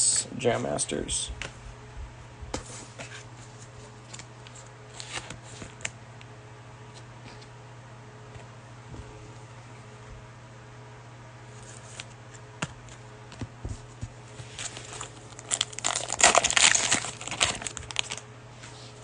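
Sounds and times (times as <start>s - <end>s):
cellophane wrapper crinkling: 14.6s - 18.2s.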